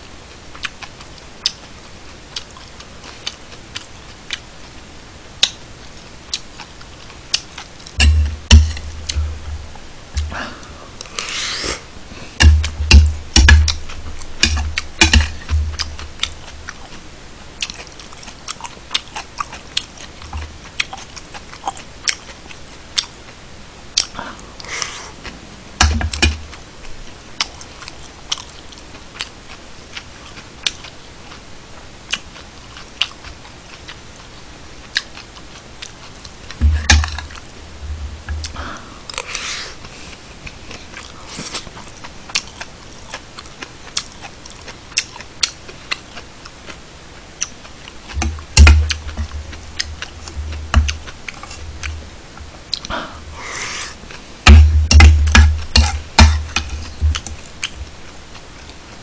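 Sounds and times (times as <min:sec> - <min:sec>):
chewing: 0:00.5 - 0:04.8, 0:05.4 - 0:09.3, 0:13.5 - 0:23.4, 0:26.2 - 0:31.4, 0:32.1 - 0:37.6, 0:38.3 - 0:46.8, 0:47.4 - 0:54.3
dull thumps: 0:08.0 - 0:10.4, 0:12.4 - 0:16.1, 0:25.8 - 0:26.4, 0:36.6 - 0:37.2, 0:48.2 - 0:51.1, 0:54.4 - 0:57.4.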